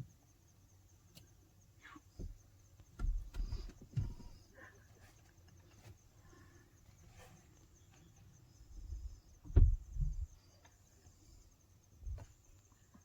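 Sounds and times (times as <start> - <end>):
faint insects chirping: 0.0 - 13.0
low dull thumps: 9.4 - 10.3.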